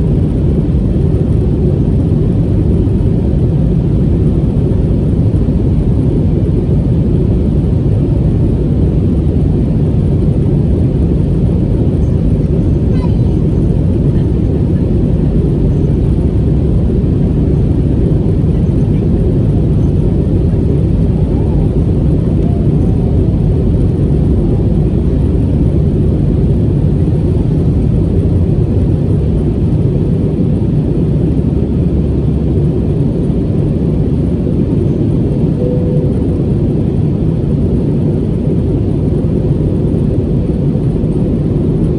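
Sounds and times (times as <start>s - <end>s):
aircraft cabin engine rumble: 0.0s - 41.9s.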